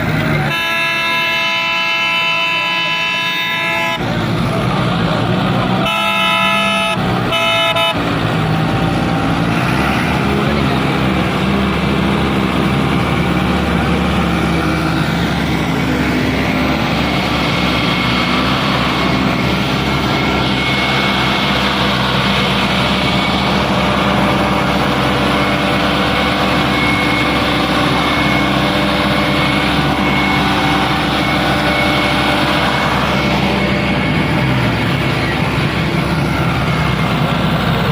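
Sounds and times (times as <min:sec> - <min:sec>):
tractor diesel engine running: 0:00.0 - 0:37.9
vehicle horn: 0:00.3 - 0:04.1, 0:05.8 - 0:08.1.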